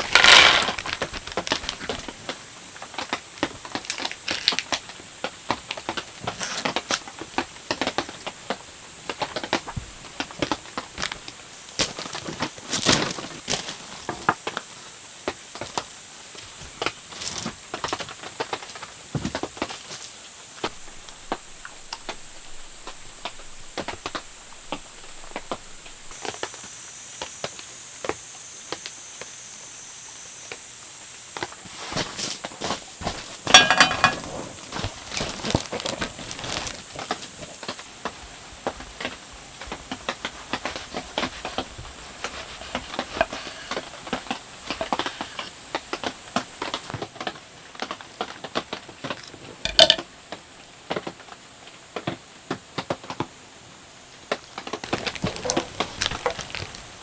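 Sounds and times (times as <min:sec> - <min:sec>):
rain pattering: 0:33.0 - 0:43.2
clattering knocks: 0:33.5 - 0:35.9.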